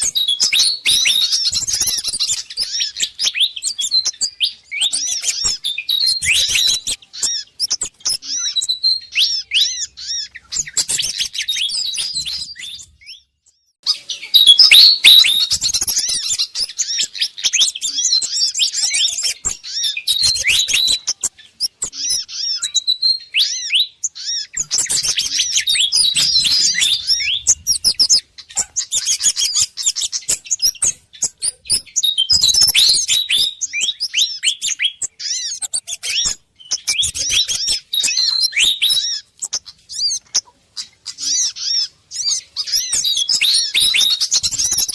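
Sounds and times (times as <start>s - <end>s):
birds chirping rapidly: 0.0s - 44.9s.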